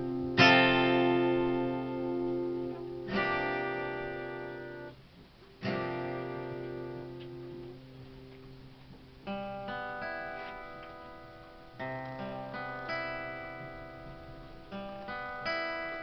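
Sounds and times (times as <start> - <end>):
acoustic guitar chords: 0.0 - 16.0.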